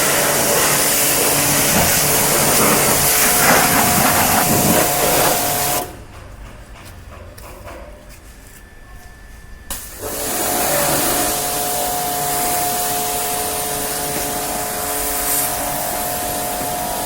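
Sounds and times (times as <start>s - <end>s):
pressure washer spraying: 0.0s - 6.0s, 9.7s - 17.0s.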